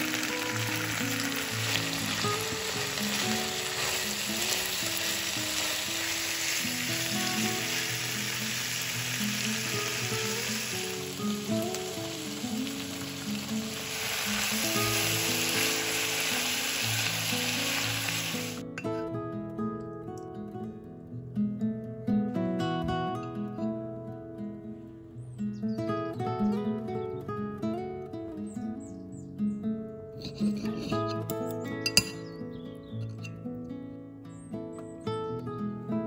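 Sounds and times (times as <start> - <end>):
food sizzling in hot oil: 0.0 - 18.6.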